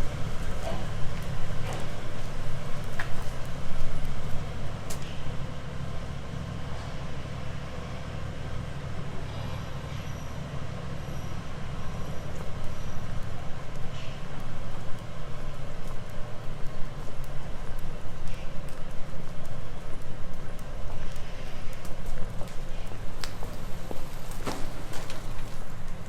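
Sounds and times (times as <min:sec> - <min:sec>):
light street clicks: 0:00.0 - 0:07.0, 0:11.4 - 0:26.0.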